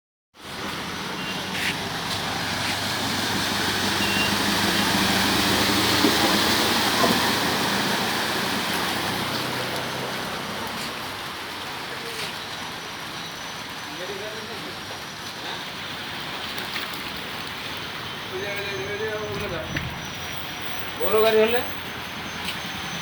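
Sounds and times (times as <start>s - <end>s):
vehicle engine hum: 0.4s - 13.5s
heavy rain falling: 0.4s - 23.0s.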